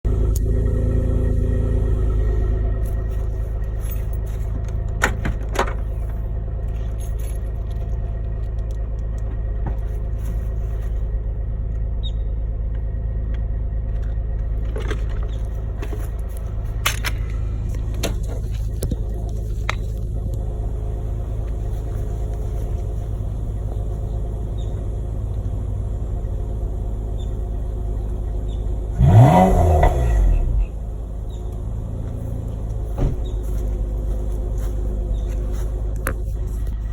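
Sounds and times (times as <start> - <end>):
engine revving: 0.0 - 5.2, 13.9 - 36.9
car engine idling: 0.0 - 36.9.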